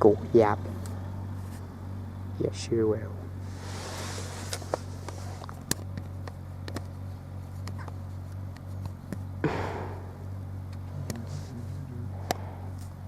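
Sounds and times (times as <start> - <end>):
low hum inside car: 0.0 - 13.0
rustle of movement: 3.4 - 9.0.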